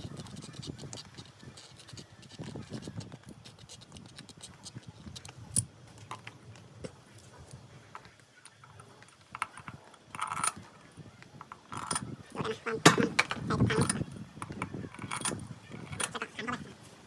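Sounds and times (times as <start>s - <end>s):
metal tools clinking: 7.9s - 10.6s, 11.4s - 12.1s, 12.9s - 16.3s.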